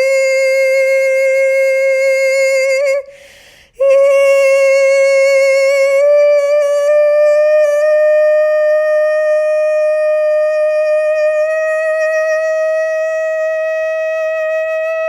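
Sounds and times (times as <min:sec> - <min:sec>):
quick breath: 0:03.1 - 0:03.8.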